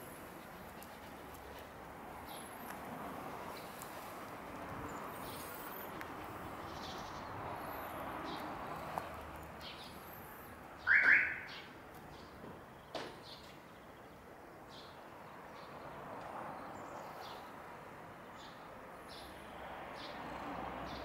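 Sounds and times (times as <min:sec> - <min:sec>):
small birds chirping: 0:04.8 - 0:15.8.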